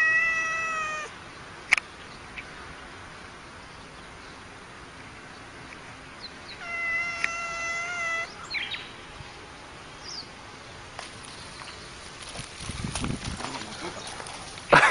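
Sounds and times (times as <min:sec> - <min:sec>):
cat meowing: 0:00.0 - 0:01.1, 0:06.5 - 0:08.4.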